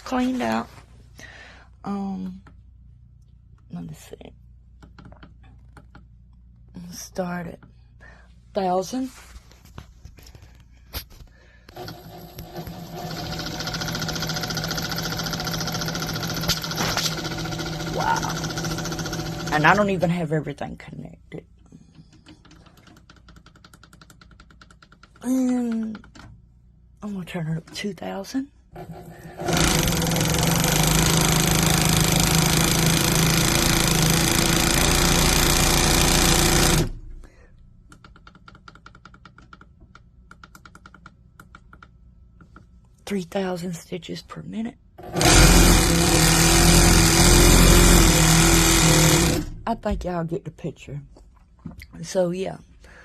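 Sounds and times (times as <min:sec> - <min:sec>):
sewing machine running: 0:11.7 - 0:20.2, 0:28.8 - 0:37.2, 0:45.0 - 0:49.6.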